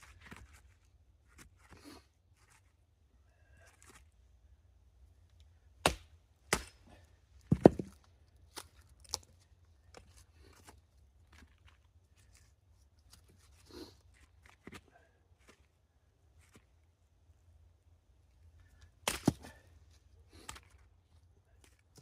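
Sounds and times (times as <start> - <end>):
axe chopping wood: 5.8 - 6.9, 7.5 - 8.0, 19.0 - 19.6.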